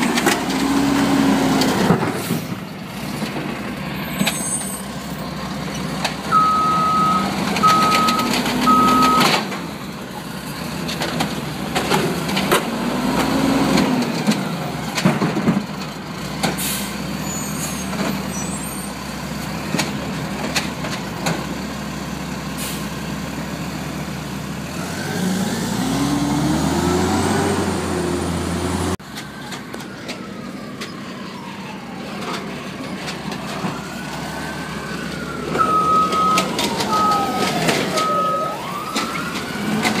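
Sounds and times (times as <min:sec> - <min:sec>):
diesel engine revving: 0:00.0 - 0:30.0, 0:32.0 - 0:40.0
reverse alarm beeps: 0:06.3 - 0:09.4, 0:35.6 - 0:38.6.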